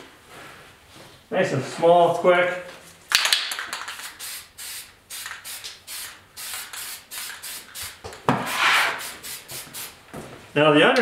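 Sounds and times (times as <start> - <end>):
sandpaper rubbing on metal: 8.4 - 9.9.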